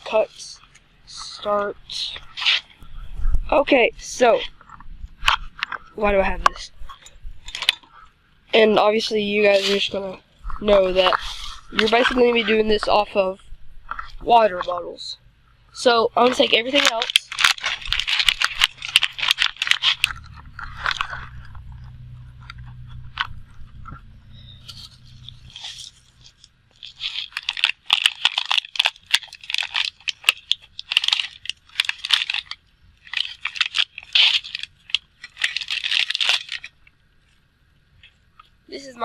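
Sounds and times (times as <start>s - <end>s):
low hum: 0.0s - 8.5s, 9.7s - 15.8s, 17.4s - 27.3s
plastic bottles crinkling: 0.0s - 15.1s, 15.8s - 39.0s.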